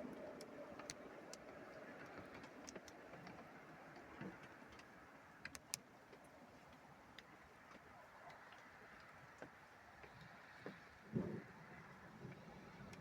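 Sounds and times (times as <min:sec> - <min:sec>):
sharp ticks: 0:05.5 - 0:05.8.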